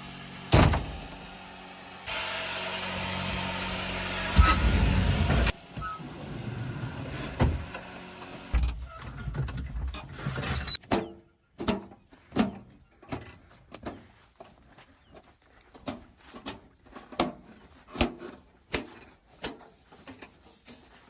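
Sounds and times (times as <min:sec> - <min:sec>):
diesel engine running: 0:00.0 - 0:08.7.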